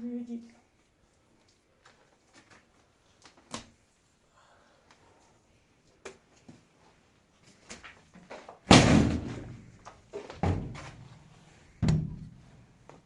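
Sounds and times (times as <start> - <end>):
loud slam: 8.7 - 9.6.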